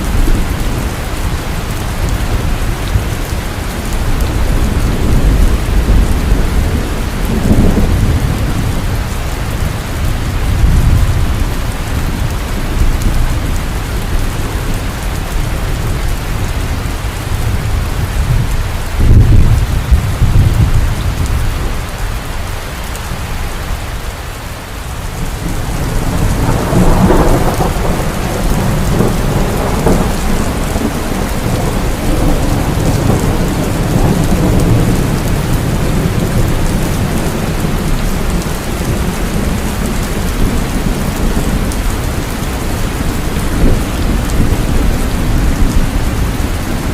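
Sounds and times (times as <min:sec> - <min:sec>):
rolling thunder rumble: 0:00.0 - 0:24.0, 0:25.0 - 0:46.9
heavy rain falling: 0:00.0 - 0:46.9.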